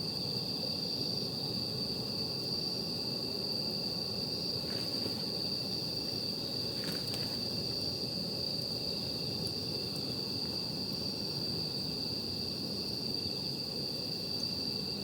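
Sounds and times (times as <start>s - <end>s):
background hiss: 0.0s - 15.0s
night insects trilling: 0.0s - 15.0s.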